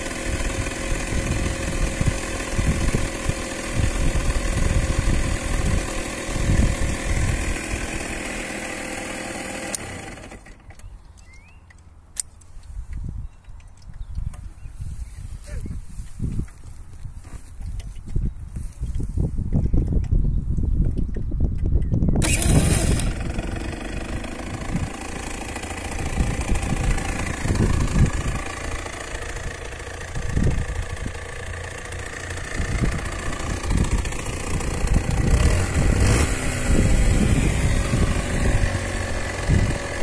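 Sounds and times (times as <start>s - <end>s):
motorcycle engine idling: 0.0s - 11.6s, 22.2s - 40.0s
motorcycle engine starting: 0.0s - 12.5s, 22.1s - 40.0s
wind rumble on microphone: 0.2s - 8.1s, 12.6s - 40.0s.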